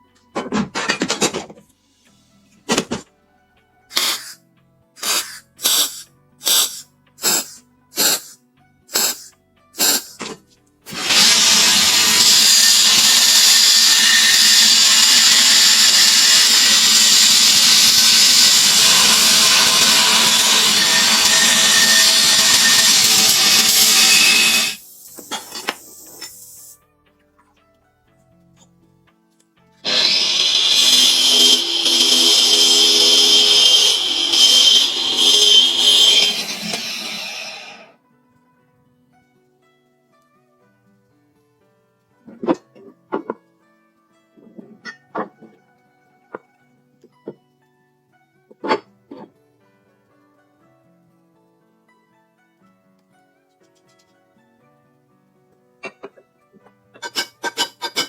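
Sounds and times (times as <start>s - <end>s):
faint soft music: 0.0s - 10.9s, 24.8s - 29.8s, 37.9s - 57.5s
hand tool strokes: 3.9s - 4.4s, 5.0s - 10.2s, 10.9s - 26.5s, 29.8s - 37.9s, 57.0s - 58.0s
power tool running: 10.9s - 24.8s, 29.8s - 37.9s.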